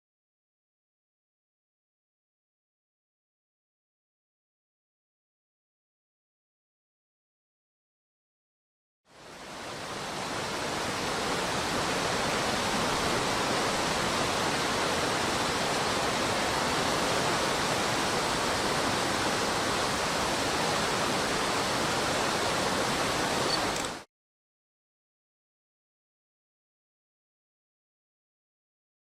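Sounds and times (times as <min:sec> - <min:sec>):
stream rapids rushing: 0:09.1 - 0:24.0.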